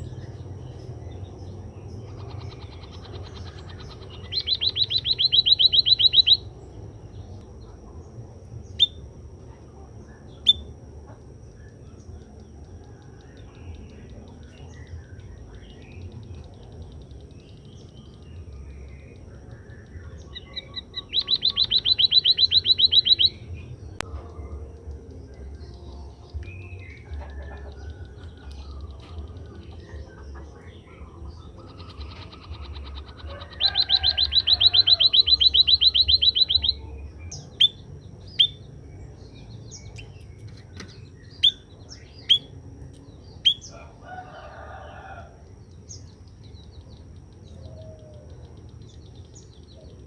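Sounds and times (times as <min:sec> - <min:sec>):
sharp bird chirps: 0:00.0 - 0:07.8, 0:10.1 - 0:10.8, 0:11.5 - 0:44.7
bird fast trill: 0:01.8 - 0:06.6, 0:14.8 - 0:23.5, 0:31.4 - 0:38.6.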